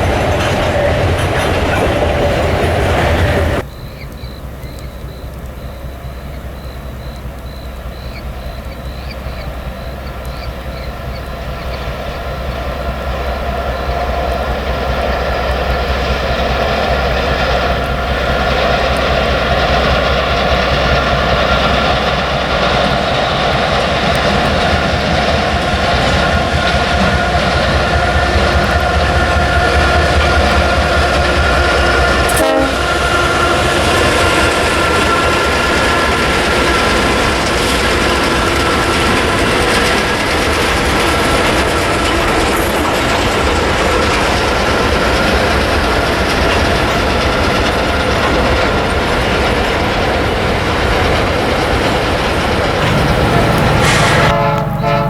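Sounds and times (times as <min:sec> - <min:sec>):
train wagons rolling on rails: 0:00.0 - 0:55.0
steady high tones: 0:52.8 - 0:55.0.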